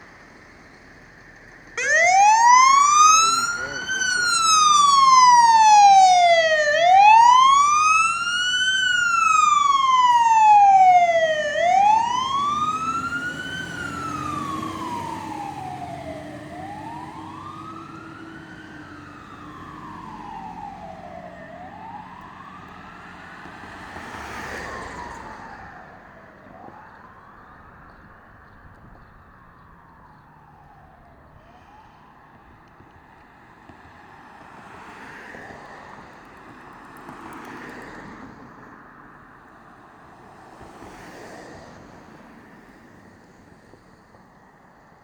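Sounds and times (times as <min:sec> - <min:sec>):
fire engine siren wailing: 0:01.7 - 0:34.4.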